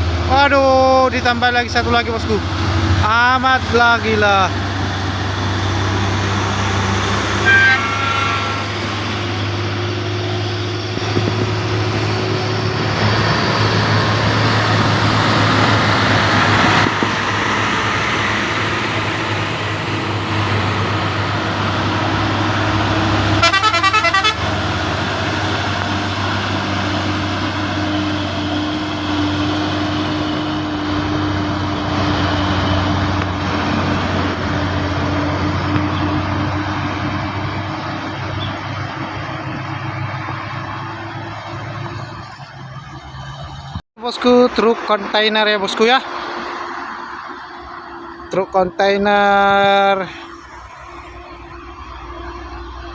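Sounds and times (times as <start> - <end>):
truck engines droning: 0.0 - 52.9
truck horn blast: 6.8 - 10.0, 22.6 - 25.1
short horn toot: 7.4 - 8.7, 23.4 - 24.5.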